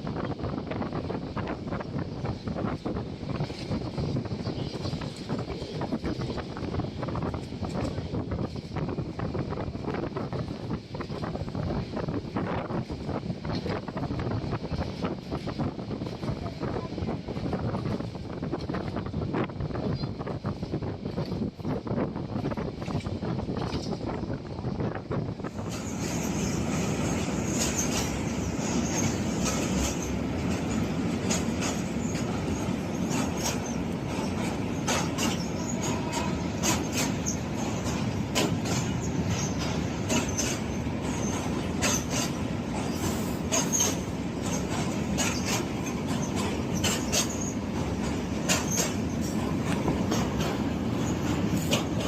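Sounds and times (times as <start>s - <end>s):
rail clicks: 0.0s - 52.0s
train wheels rumbling: 0.0s - 52.0s
faint high wheel squeal: 46.2s - 47.6s.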